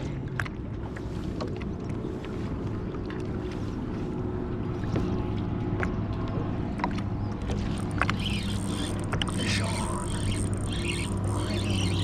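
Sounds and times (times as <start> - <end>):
water noise: 0.0 - 12.0
wind: 0.0 - 12.0
boat motor humming: 0.3 - 12.0
faint clicks: 7.7 - 12.0.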